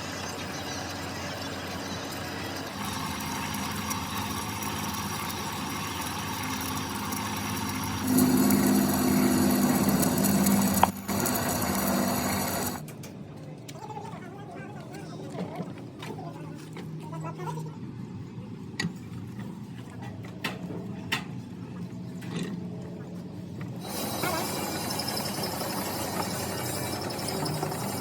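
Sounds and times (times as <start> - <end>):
workshop machine motor running: 0.0 - 12.9, 23.8 - 28.0.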